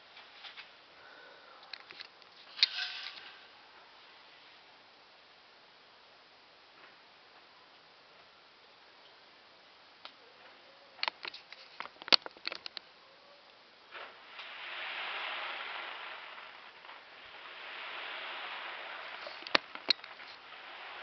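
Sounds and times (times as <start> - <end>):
firework cracks and pops: 1.7 - 3.6, 10.0 - 12.9, 13.8 - 21.0
hissing crackle of sparks: 1.7 - 4.7, 10.0 - 21.0.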